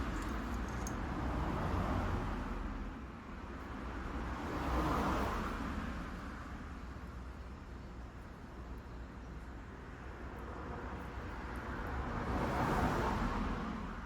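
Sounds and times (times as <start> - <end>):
road traffic passing: 0.0 - 3.1.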